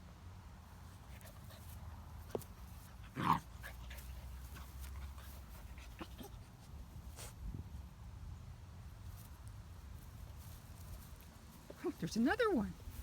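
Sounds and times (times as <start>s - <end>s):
light knocks and taps: 2.2s - 2.6s.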